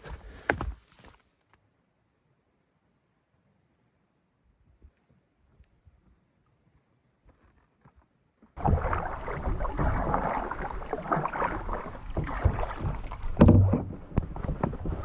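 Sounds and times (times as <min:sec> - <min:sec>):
canoe paddling: 0:08.6 - 0:15.0.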